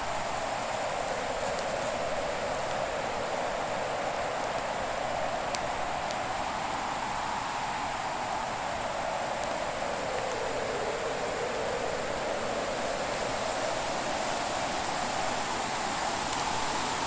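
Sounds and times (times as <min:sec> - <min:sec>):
burning wood crackles: 0:00.0 - 0:13.1.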